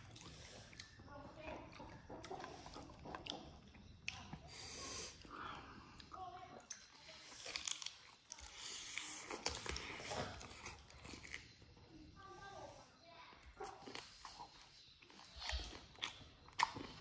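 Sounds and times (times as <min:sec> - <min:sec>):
person chewing and sucking: 0:00.0 - 0:01.0, 0:01.7 - 0:11.8, 0:13.5 - 0:17.0
mouth clicks and smacks: 0:00.0 - 0:05.3, 0:13.4 - 0:17.0.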